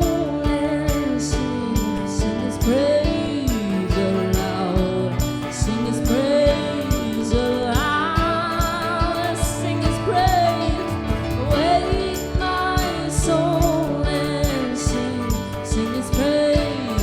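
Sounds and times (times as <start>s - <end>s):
band playing upbeat praise song: 0.0s - 17.0s
steady drum beat: 0.0s - 17.0s
sustained melodic line with vibrato: 0.0s - 17.0s.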